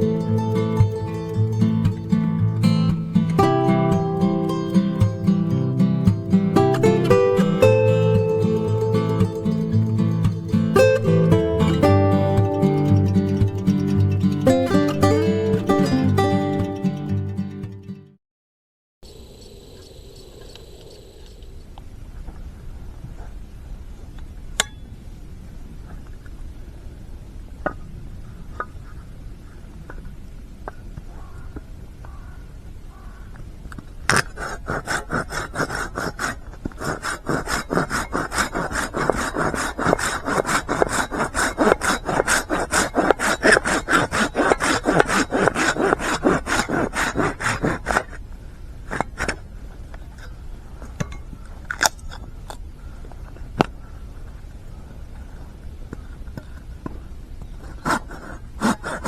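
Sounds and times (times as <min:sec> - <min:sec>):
folding saw cutting wood: 0:34.1 - 0:48.2, 0:57.7 - 0:59.0.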